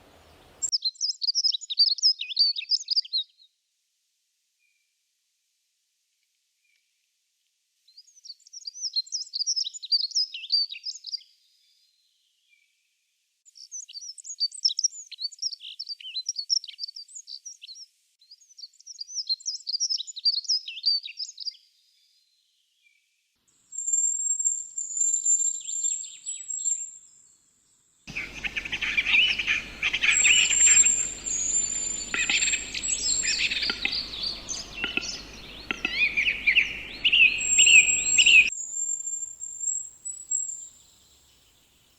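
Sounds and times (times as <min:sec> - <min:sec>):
mix of bird calls: 0:00.0 - 0:03.0, 0:28.1 - 0:40.7
songbird twittering: 0:00.0 - 0:03.2, 0:28.1 - 0:41.7
steady background noise: 0:28.1 - 0:38.5.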